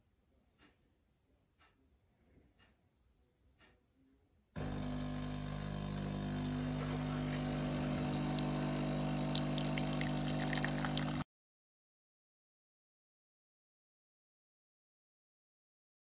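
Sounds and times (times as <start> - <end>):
coffee machine pump running: 4.6 - 11.2
liquid pouring into cup: 4.6 - 11.2.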